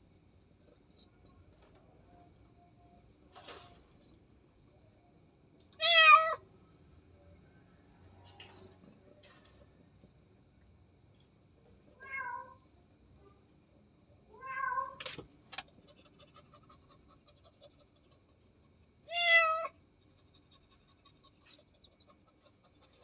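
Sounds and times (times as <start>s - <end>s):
cat meowing: 5.8s - 6.4s, 12.0s - 12.6s, 14.4s - 15.0s, 19.1s - 19.8s.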